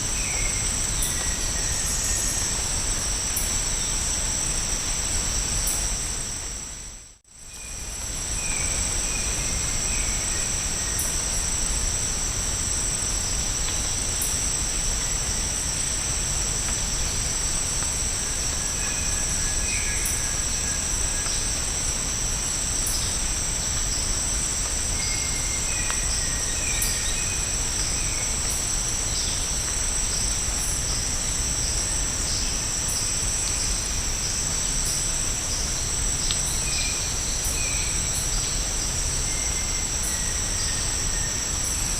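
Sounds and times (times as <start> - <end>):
shrill insect chorus: 16.9 - 41.9.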